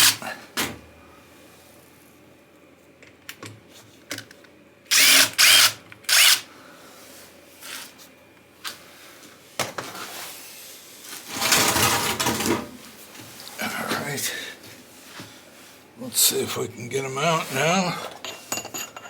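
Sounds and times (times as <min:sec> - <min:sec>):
power drill motor whine: 0:00.0 - 0:00.2, 0:04.9 - 0:06.5.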